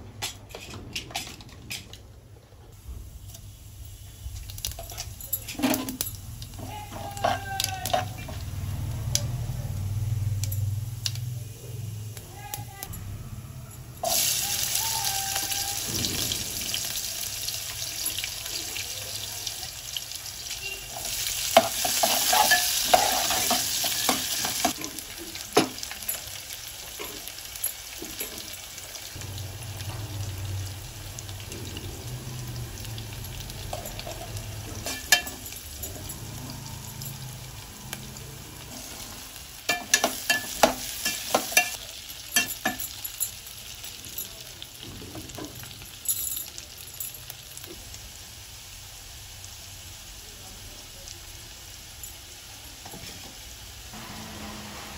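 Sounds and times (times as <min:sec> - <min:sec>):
hot oil sizzling in a pot: 0:02.8 - 0:13.2, 0:13.8 - 0:54.9
metal spatula scraping a pot: 0:21.6 - 0:24.7.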